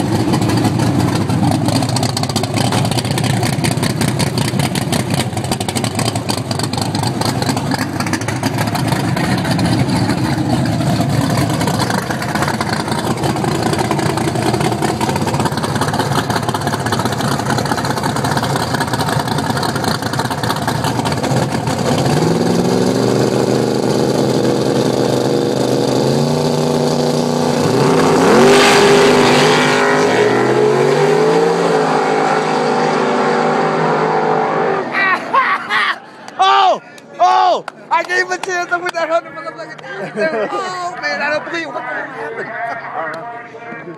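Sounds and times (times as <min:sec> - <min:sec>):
car engine idling and revving: 0:00.0 - 0:35.0.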